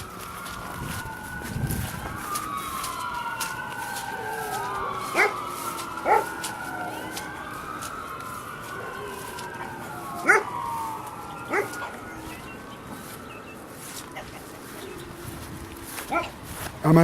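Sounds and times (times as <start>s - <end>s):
wailing siren-like tones: 0.0s - 17.0s
dog yelping: 5.1s - 5.4s, 6.0s - 6.4s, 10.2s - 10.5s, 11.5s - 11.9s, 16.1s - 16.4s.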